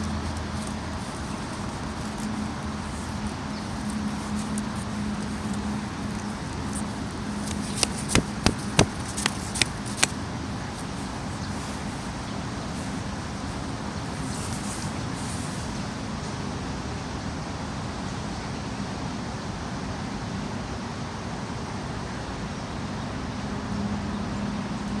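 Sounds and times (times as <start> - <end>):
sharp knocks: 7.5 - 9.7.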